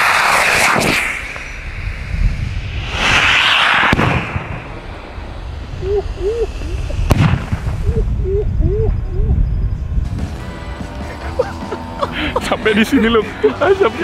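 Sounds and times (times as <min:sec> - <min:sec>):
firework hissing burst: 0:00.0 - 0:07.9
firework bangs: 0:02.8 - 0:05.4, 0:07.0 - 0:07.8.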